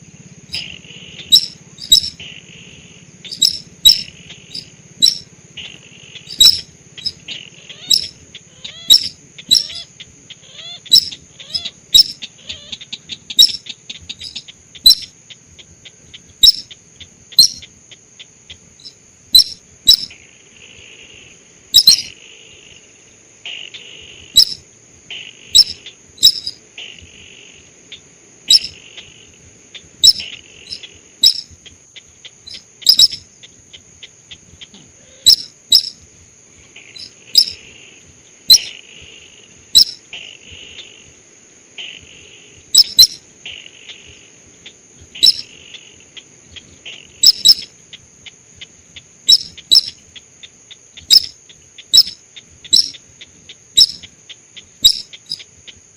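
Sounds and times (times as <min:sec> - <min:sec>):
buzzy rasping bird notes: 0:00.0 - 0:15.2, 0:15.8 - 0:17.8, 0:21.2 - 0:22.2, 0:24.3 - 0:24.7, 0:25.4 - 0:27.7, 0:28.4 - 0:33.8, 0:34.4 - 0:36.0, 0:36.6 - 0:38.9, 0:39.6 - 0:41.0, 0:41.9 - 0:44.0, 0:45.1 - 0:47.8, 0:49.3 - 0:50.1, 0:51.0 - 0:55.5
high insect-like trill: 0:00.0 - 0:55.9.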